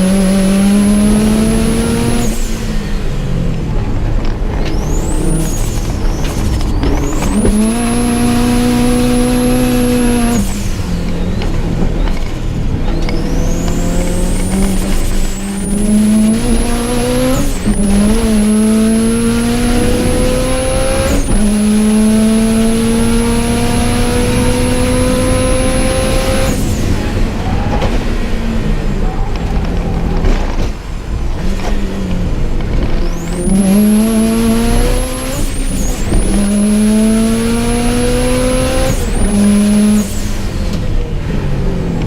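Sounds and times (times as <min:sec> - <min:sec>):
car engine accelerating hard: 0:00.0 - 0:42.0.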